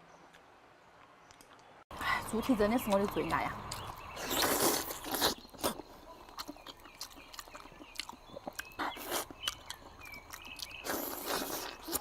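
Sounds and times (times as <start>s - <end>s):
person chewing wetly: 2.8s - 12.0s.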